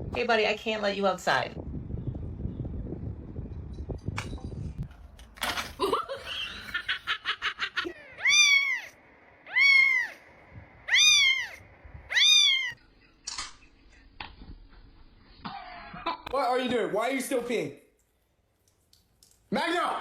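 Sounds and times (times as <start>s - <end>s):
cat meowing: 8.0s - 10.2s, 10.8s - 12.8s.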